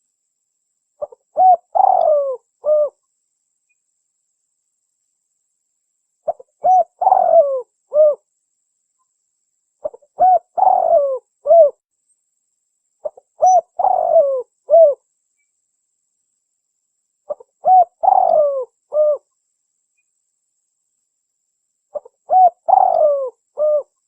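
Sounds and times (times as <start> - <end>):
dove cooing: 1.0 - 3.0, 6.3 - 8.2, 9.8 - 11.8, 13.0 - 15.0, 17.3 - 19.3, 21.9 - 24.0.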